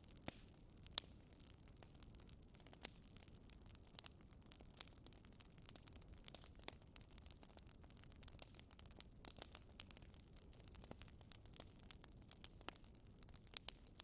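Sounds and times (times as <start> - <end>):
faint wood fire crackling: 0.0 - 14.0.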